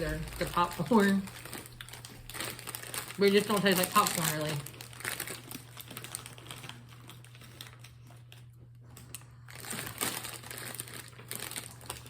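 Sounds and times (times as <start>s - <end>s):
low steady hum: 0.0s - 12.0s
plastic wrapper crinkling: 0.0s - 12.0s.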